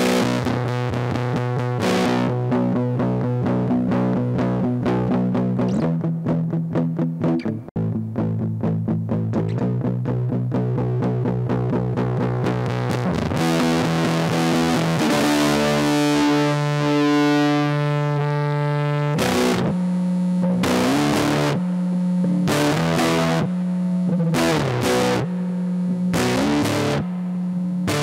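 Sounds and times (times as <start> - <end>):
fuzz electric guitar: 0.0 - 28.0.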